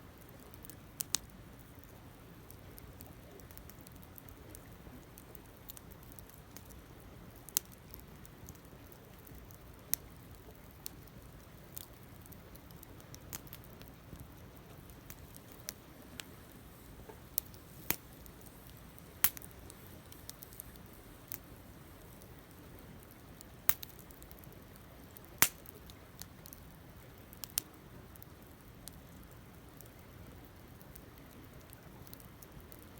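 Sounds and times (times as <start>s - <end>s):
campfire crackling: 0.1s - 32.9s.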